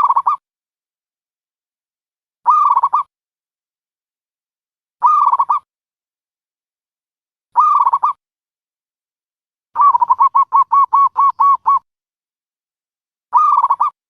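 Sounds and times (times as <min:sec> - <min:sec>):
dove cooing: 0:09.8 - 0:11.8.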